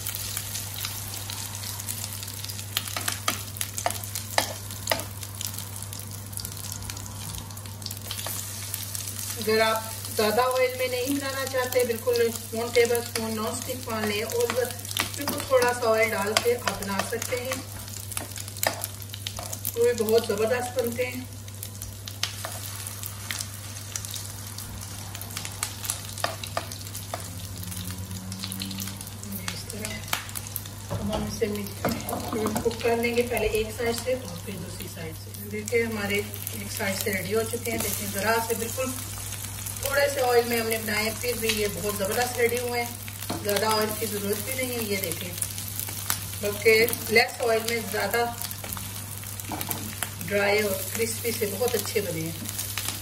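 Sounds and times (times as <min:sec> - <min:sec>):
patties sizzling in a frying pan: 0:00.0 - 0:53.0
oil crackling and popping: 0:20.6 - 0:30.8, 0:36.4 - 0:53.0.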